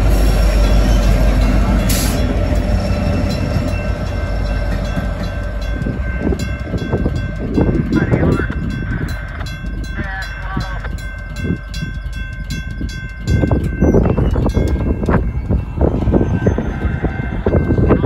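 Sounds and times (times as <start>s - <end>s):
train wheels rumbling and clanking: 0.0s - 18.0s.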